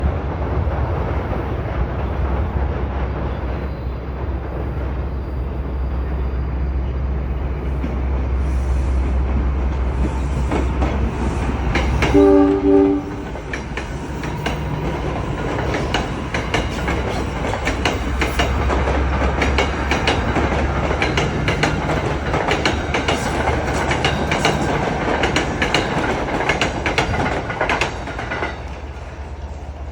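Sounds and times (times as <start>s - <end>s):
electric train rumbling on rails: 0.0s - 29.9s
wheels clattering over rail joints: 9.3s - 29.6s
train horn blast: 12.0s - 13.2s.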